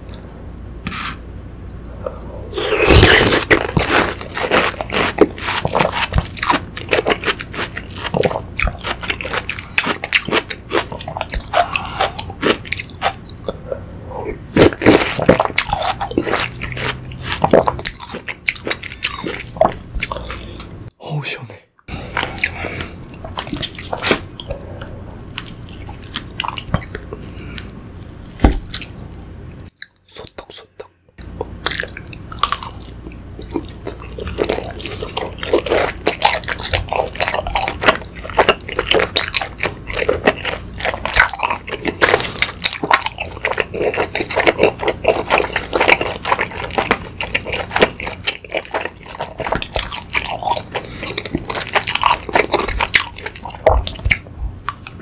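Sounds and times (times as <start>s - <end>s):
wet chewing mouth sounds: 1.9s - 20.8s, 22.1s - 27.7s, 29.7s - 55.0s.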